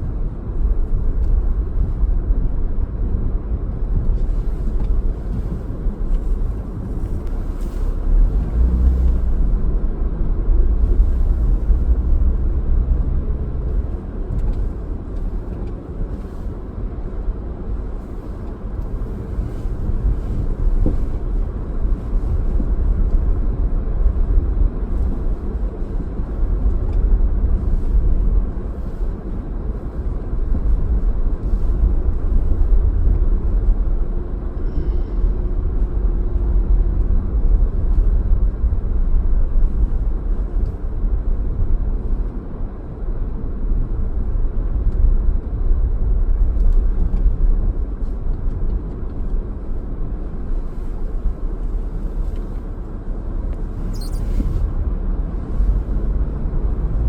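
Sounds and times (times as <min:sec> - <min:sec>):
car driving rumble: 0:00.0 - 0:57.0.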